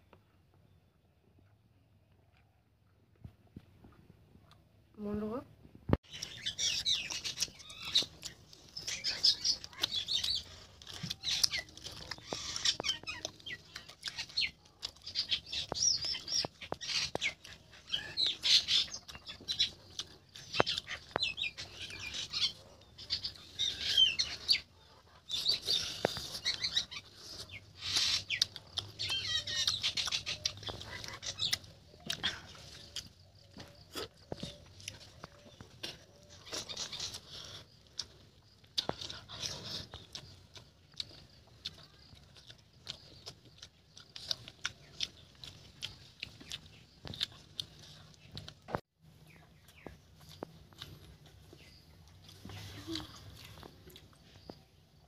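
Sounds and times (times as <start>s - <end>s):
wet chewing and lip smacking: 6.0s - 55.0s.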